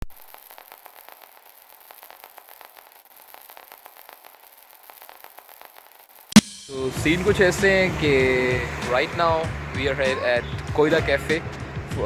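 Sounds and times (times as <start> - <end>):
crackling clicks: 0.0 - 6.6.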